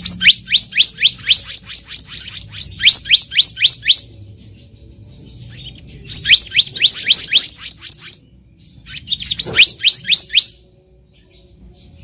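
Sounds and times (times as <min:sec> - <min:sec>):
bird whistling rising notes: 0:00.0 - 0:04.2, 0:05.5 - 0:10.7.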